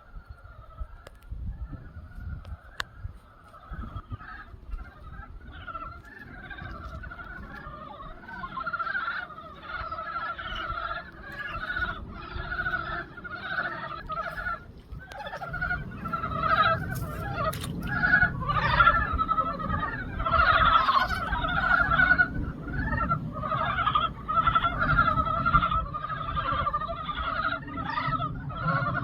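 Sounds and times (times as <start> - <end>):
frogs croaking: 0.0 - 29.0
low rumble: 3.7 - 26.1.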